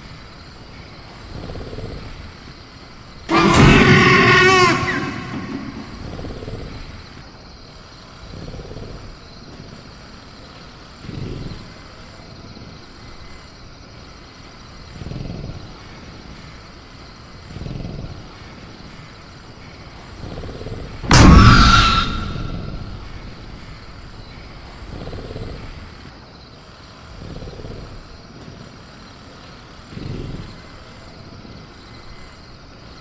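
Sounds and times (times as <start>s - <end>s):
insect chirring: 0.1s - 33.0s
bending shriek-like tone: 3.3s - 6.3s, 21.1s - 23.4s
cage rattling crash: 3.3s - 6.5s, 21.1s - 23.7s.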